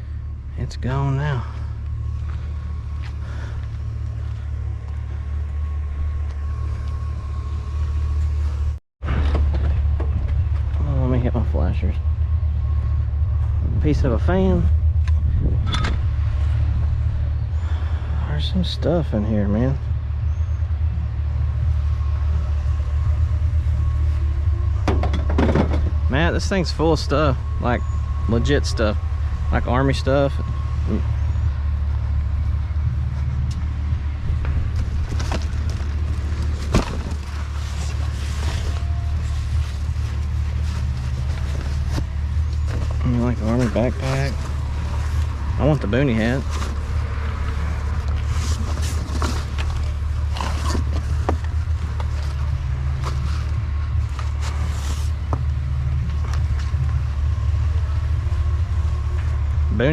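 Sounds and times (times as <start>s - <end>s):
truck engine idling: 0.0s - 59.9s
knocks and rustles of gear: 34.4s - 44.6s, 47.9s - 55.5s.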